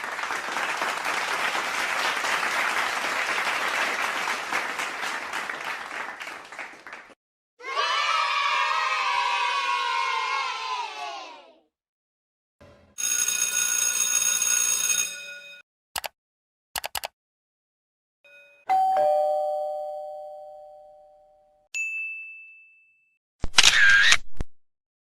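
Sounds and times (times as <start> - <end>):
sharp clicks: 16.8 - 17.1
two-note doorbell chime: 18.3 - 23.2.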